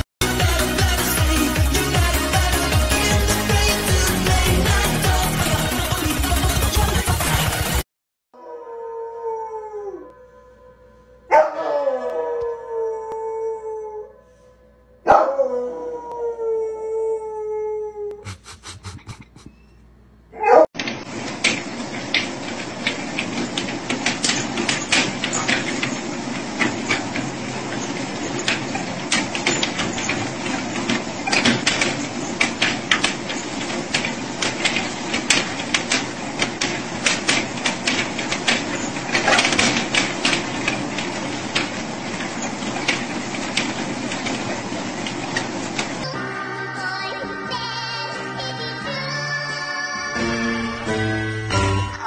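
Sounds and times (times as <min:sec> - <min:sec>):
treadmill humming: 0:00.0 - 0:07.8, 0:20.5 - 0:47.8
paws clicking on treadmill belt: 0:20.8 - 0:46.1.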